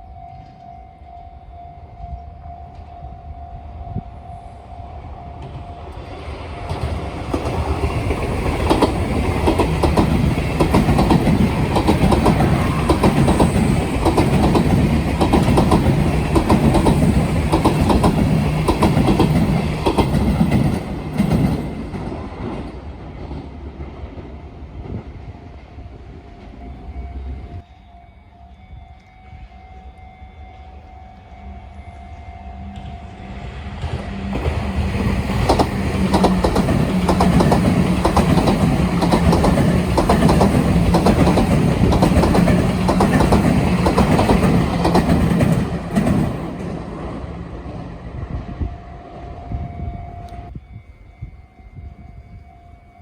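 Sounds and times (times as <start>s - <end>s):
train wheels clacking over joints: 6.7s - 22.6s, 33.8s - 47.0s.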